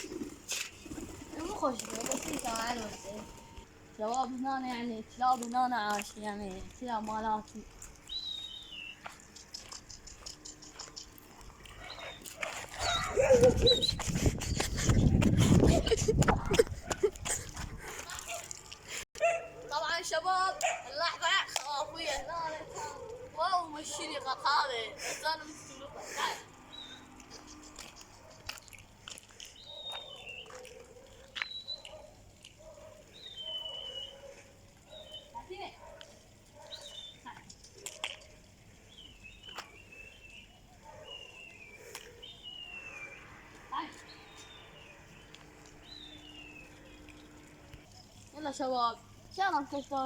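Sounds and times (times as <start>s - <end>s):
birds whistling: 8.0s - 15.2s, 33.1s - 34.3s, 38.9s - 43.3s, 44.0s - 48.2s
dogs whining and yelping: 11.7s - 14.4s.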